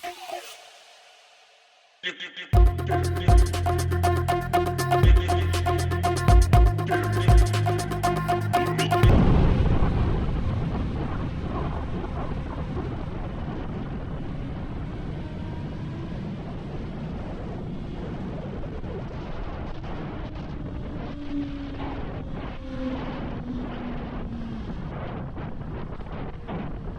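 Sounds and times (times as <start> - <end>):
wind rushing over microphone: 9.1 - 26.9.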